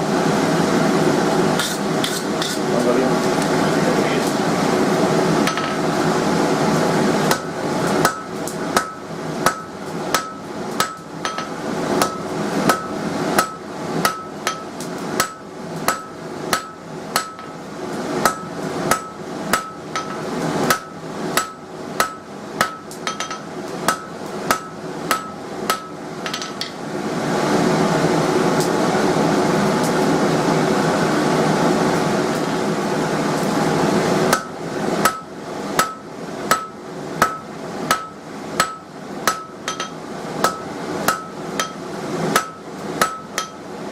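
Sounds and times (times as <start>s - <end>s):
hammer striking steel on anvil: 5.4s - 5.8s, 7.3s - 17.6s, 18.2s - 26.8s, 34.3s - 43.6s.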